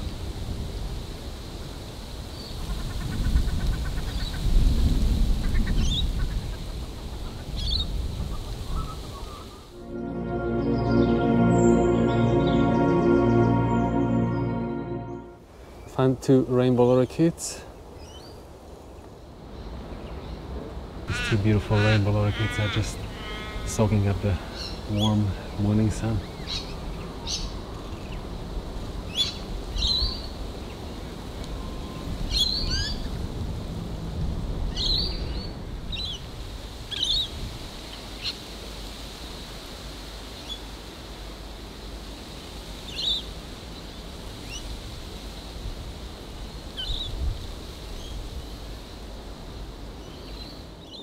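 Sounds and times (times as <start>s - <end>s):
low background noise: 6.2s - 46.8s.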